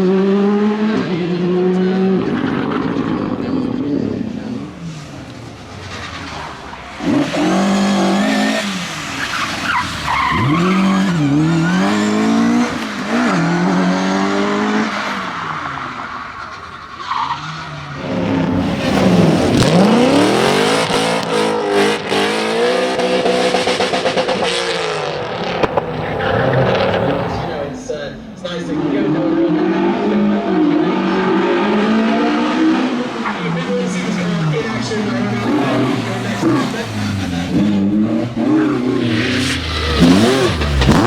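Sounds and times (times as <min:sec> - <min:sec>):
rally car engine revving: 0:00.0 - 0:27.9, 0:29.0 - 0:41.0
tyres skidding and squealing: 0:01.0 - 0:28.7, 0:29.7 - 0:41.0
car passing at full throttle: 0:17.6 - 0:28.0, 0:33.7 - 0:41.0.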